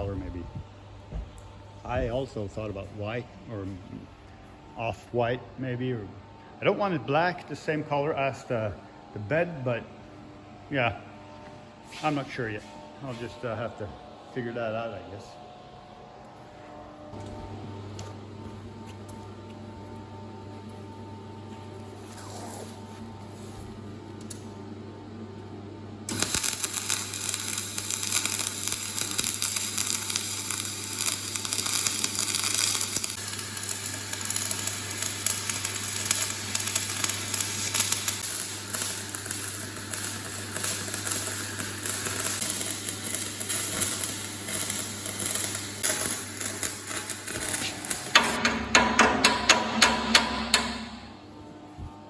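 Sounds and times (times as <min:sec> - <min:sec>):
welding arc crackling: 0:26.1 - 0:51.2
hammer strikes on metal: 0:48.1 - 0:51.2.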